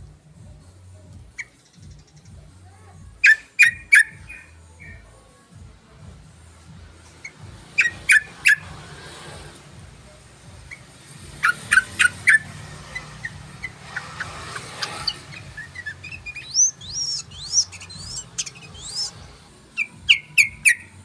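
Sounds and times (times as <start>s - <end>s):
whistled bird phrases: 3.2s - 5.0s, 14.8s - 19.2s
sharp bird chirps: 11.4s - 19.2s, 19.8s - 20.9s.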